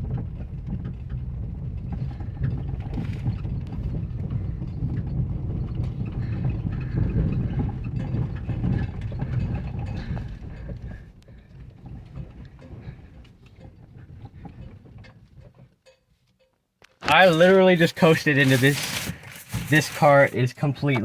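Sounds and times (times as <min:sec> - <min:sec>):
car rolling low rumble: 0:00.0 - 0:15.9.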